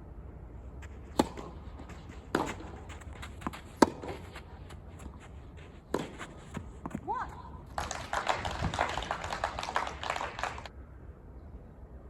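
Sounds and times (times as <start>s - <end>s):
tennis ball hits: 1.0s - 8.8s.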